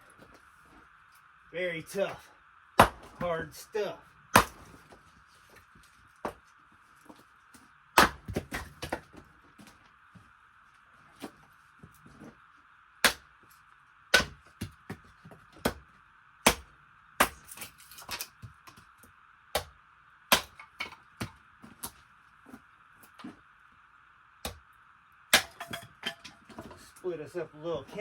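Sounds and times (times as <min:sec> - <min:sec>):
wood being chopped: 0:02.8 - 0:03.4, 0:04.3 - 0:04.9, 0:08.0 - 0:09.2, 0:13.0 - 0:13.3, 0:14.1 - 0:18.8, 0:19.6 - 0:22.0, 0:24.4 - 0:24.6, 0:25.3 - 0:26.7.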